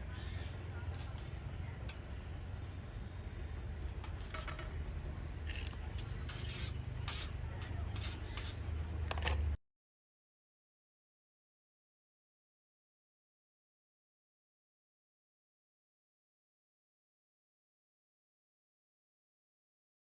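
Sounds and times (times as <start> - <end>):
cricket chirping: 0.0 - 9.4.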